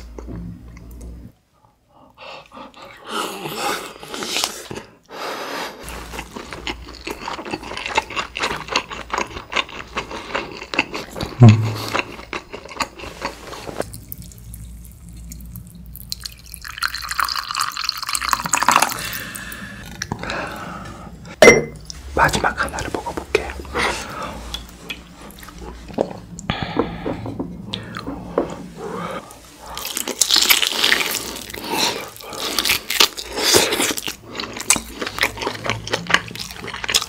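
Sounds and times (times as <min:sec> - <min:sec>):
low gulp: 0:11.2 - 0:12.1
wet chewing: 0:29.3 - 0:37.0.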